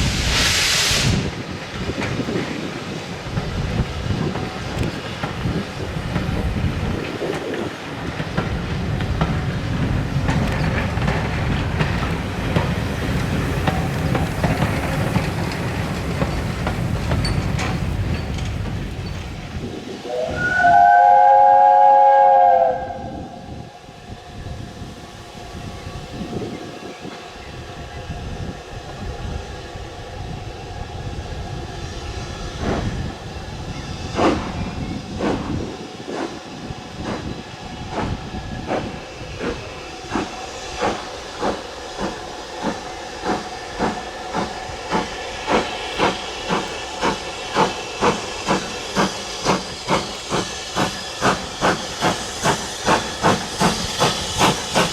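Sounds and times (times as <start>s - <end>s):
steam hissing: 0.0s - 54.9s
steam locomotive whistle: 20.0s - 24.1s.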